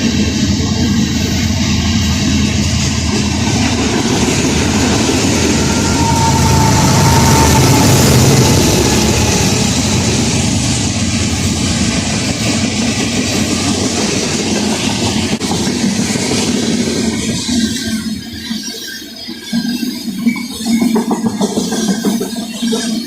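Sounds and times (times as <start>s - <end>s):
train wheels clattering over rails: 0.0s - 18.6s, 20.4s - 23.0s.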